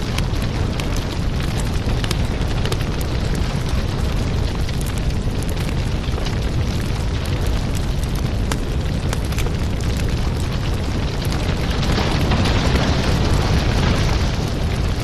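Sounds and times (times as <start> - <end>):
firewood crackling and popping: 0.0 - 15.0
rush of flame: 0.0 - 15.0.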